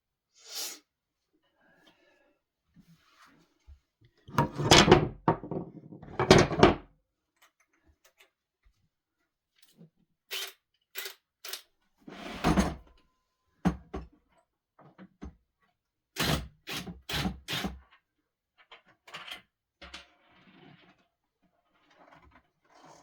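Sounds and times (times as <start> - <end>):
objects knocking and clattering: 4.3 - 6.9.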